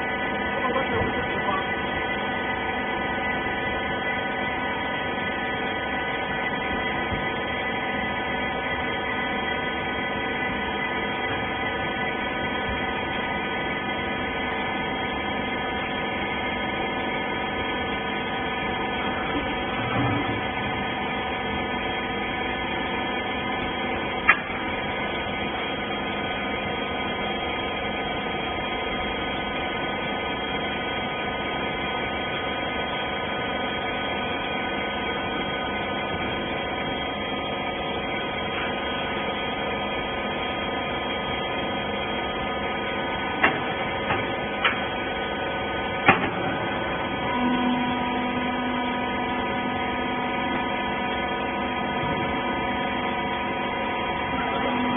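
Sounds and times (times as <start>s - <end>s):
baler machine hum: 0.0s - 54.9s.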